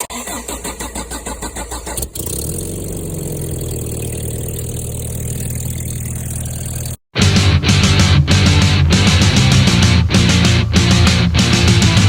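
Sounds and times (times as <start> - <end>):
vehicle engine cranking and idling: 0.0 - 7.0.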